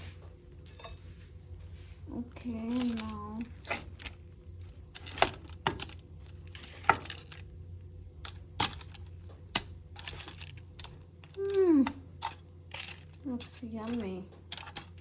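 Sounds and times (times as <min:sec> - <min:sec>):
baking tray and utensils clinking: 0:00.0 - 0:01.3, 0:02.1 - 0:07.5, 0:08.2 - 0:15.0
person humming mmm: 0:11.4 - 0:12.1.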